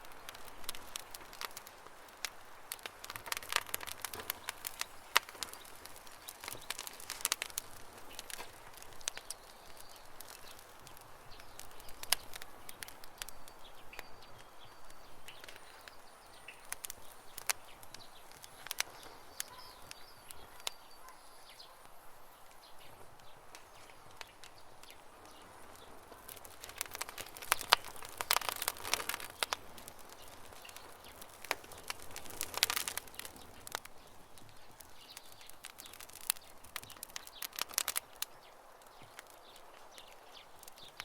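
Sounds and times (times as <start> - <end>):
campfire crackling and popping: 0.0 - 41.0
faint high bird chirps: 13.2 - 21.9.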